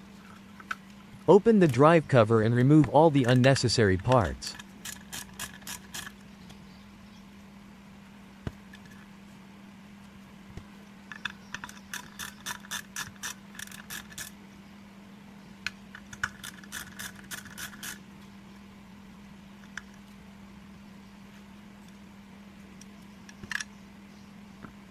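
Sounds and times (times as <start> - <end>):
steady low hum: 0.0 - 24.9
hand tools clicking on metal: 3.2 - 6.2, 11.1 - 14.3, 15.9 - 18.0.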